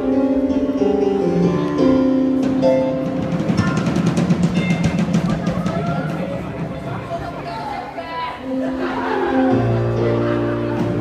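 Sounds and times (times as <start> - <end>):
piano notes: 0.0 - 11.0
drum roll: 2.3 - 7.8.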